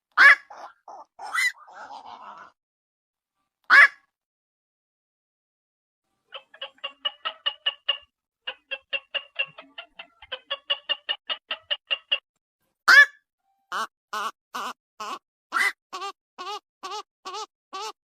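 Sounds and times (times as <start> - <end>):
heron calls: 0.2 - 2.4
harsh bird squawk: 0.2 - 2.5, 3.7 - 4.0, 13.7 - 18.0.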